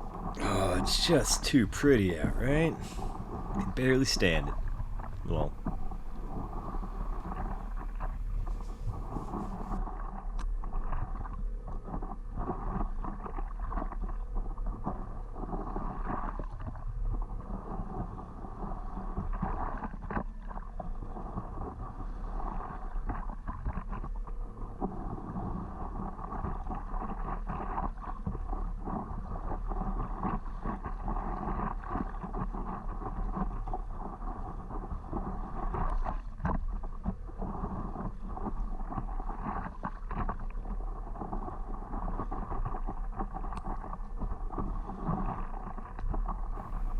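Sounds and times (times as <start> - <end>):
wind rumble on microphone: 4.6 - 46.9.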